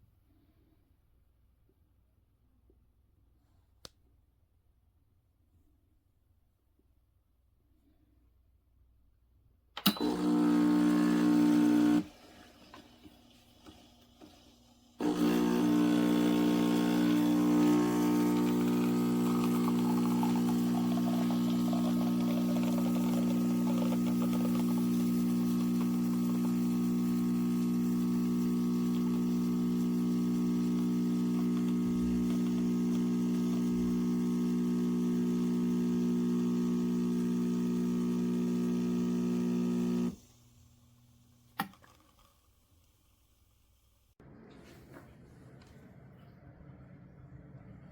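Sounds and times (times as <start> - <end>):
espresso machine pump humming: 9.8 - 40.2.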